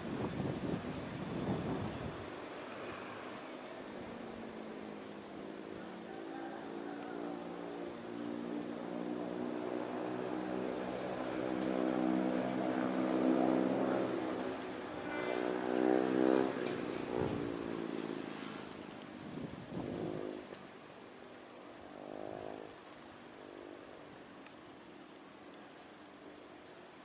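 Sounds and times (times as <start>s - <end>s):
diesel train engine drone: 7.4s - 19.0s.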